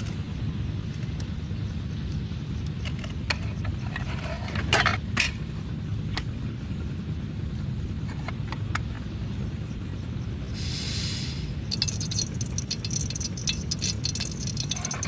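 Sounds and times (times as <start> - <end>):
steady low rumble: 0.0 - 15.0
sharp clicks and clatter: 11.7 - 15.0.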